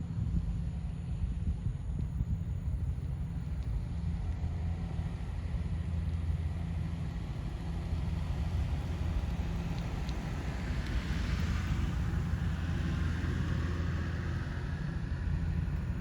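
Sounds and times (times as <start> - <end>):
helicopter rotor drone: 0.0 - 16.0.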